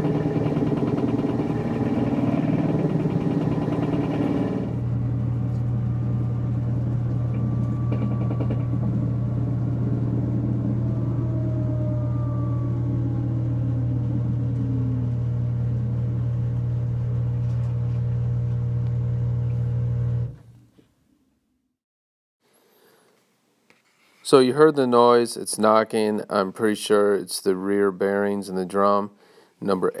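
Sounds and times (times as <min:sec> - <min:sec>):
washing machine spinning: 0:00.0 - 0:20.5.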